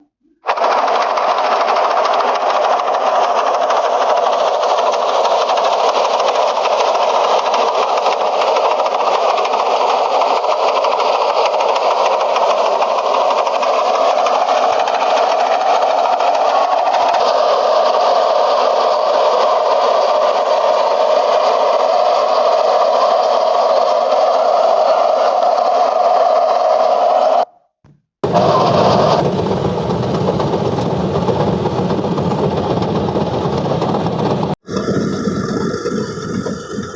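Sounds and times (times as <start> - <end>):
diesel engine running: 0.0 - 36.9
harvesting machinery rattling: 0.5 - 27.3.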